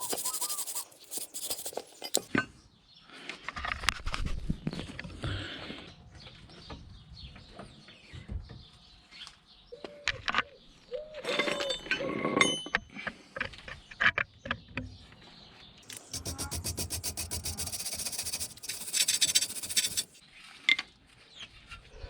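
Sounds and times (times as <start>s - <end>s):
metal tools clinking and scraping: 0.2s - 2.3s.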